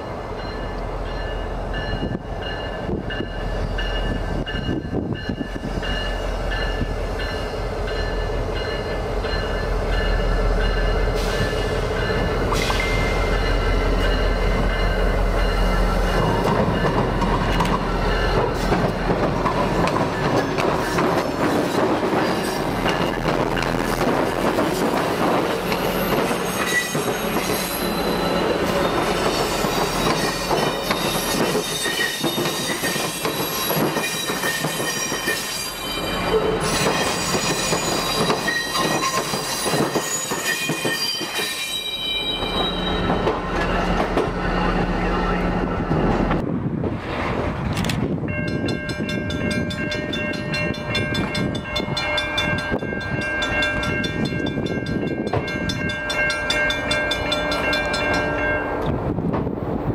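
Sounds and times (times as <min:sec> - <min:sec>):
train wheels squealing: 0:00.4 - 0:14.2, 0:25.7 - 0:46.1.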